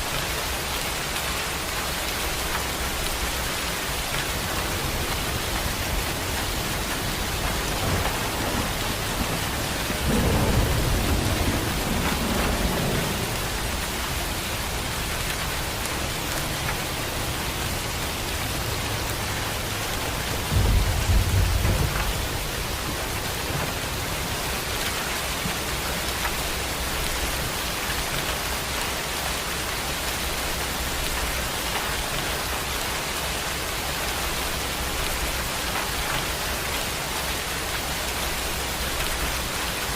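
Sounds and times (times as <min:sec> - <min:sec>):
heavy rain: 0:00.0 - 0:39.9
thunder rumbling: 0:04.3 - 0:28.5.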